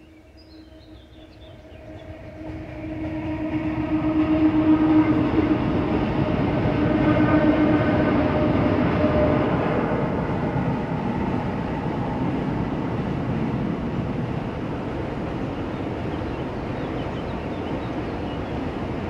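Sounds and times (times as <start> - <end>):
bird chirps: 0.0 - 2.0
freight train rumbling: 0.0 - 19.0.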